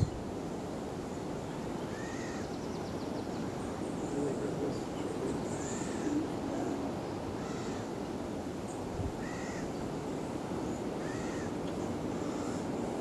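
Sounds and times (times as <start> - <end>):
bird calling in arched notes: 1.8 - 4.1, 5.4 - 6.8, 7.4 - 8.0, 9.2 - 9.8, 11.0 - 12.8.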